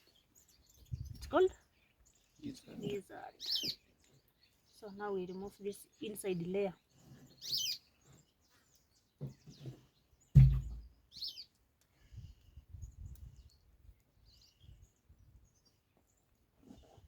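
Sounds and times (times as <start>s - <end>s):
bird chirping: 0.0s - 11.5s
sharp knock: 10.4s - 10.8s.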